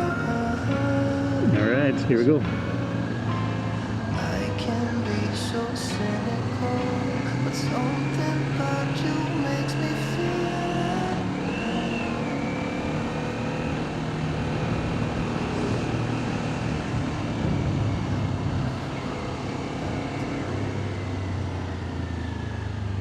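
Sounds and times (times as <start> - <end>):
motorcycle idling: 0.0 - 23.0
wind and road noise: 0.0 - 23.0.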